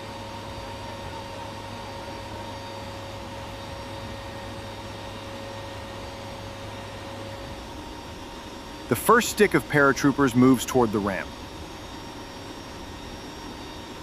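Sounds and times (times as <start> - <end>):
faint steady whine: 0.0 - 14.0
jet engine noise: 0.0 - 14.0.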